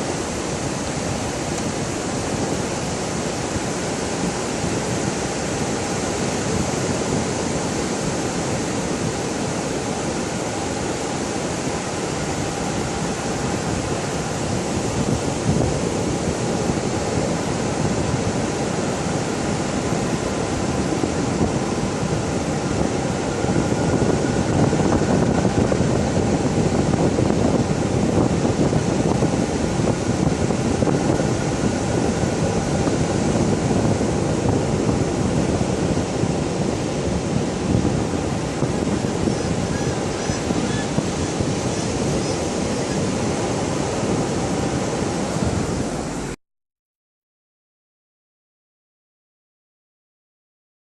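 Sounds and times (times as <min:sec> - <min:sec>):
ocean surf washing onto beach: 0:00.0 - 0:46.4
wind on microphone: 0:00.0 - 0:46.4.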